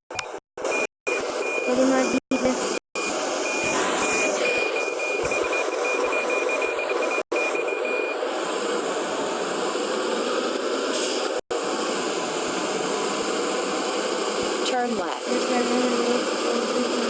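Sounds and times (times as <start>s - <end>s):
truck engine running: 0.6s - 17.0s
high warning beeps: 0.7s - 8.2s.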